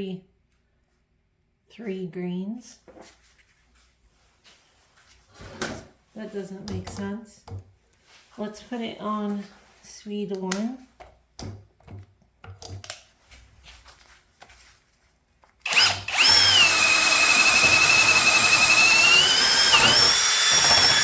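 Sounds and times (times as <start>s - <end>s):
cordless drill whining: 15.6s - 21.0s.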